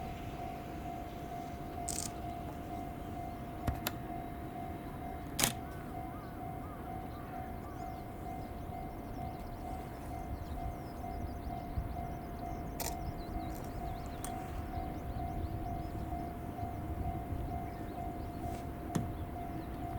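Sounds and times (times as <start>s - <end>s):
birds chirping: 0.0s - 19.9s
level crossing warning bell ringing: 0.0s - 19.9s
sharp clicks: 1.9s - 2.2s, 12.8s - 14.4s.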